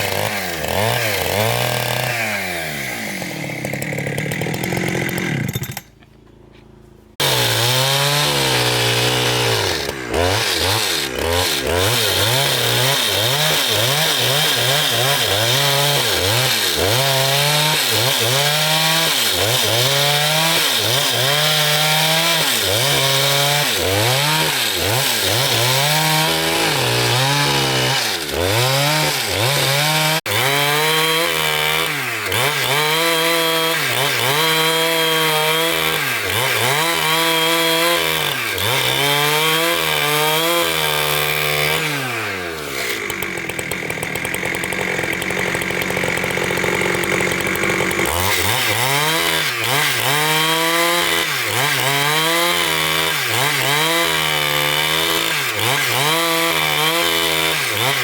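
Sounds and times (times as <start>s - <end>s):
petrol saw cutting timber: 0.0s - 58.0s.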